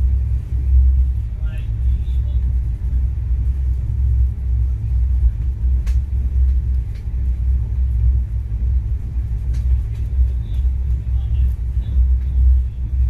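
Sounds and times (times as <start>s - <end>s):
train rumbling: 0.0s - 13.0s
faint clicks: 5.4s - 7.1s.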